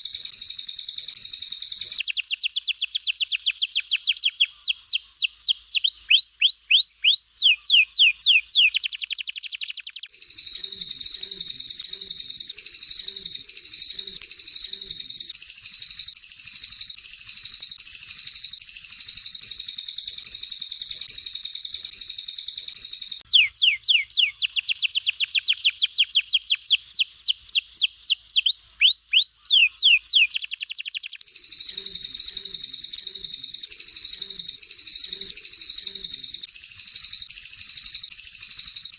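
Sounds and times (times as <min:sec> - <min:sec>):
high warbling birdsong: 0:01.1 - 0:37.0
downward-sweeping whistled bird notes: 0:10.1 - 0:24.6, 0:31.2 - 0:38.9.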